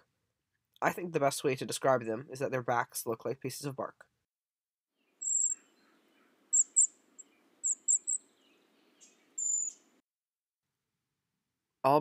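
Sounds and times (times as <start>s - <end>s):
bird high thin calls: 5.2s - 9.9s.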